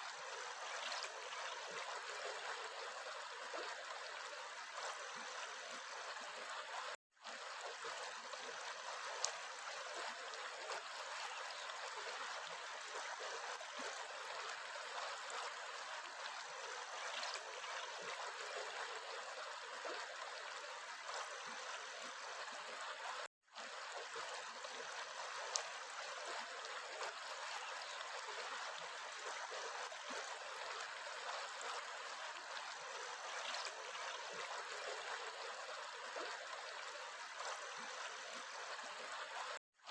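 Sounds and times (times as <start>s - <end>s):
stream flowing and trickling: 0.0s - 39.9s.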